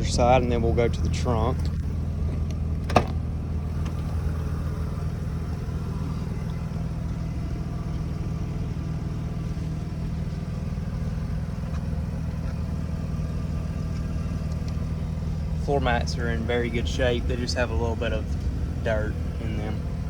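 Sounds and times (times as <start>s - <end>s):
rotary engine idling: 0.0s - 20.0s.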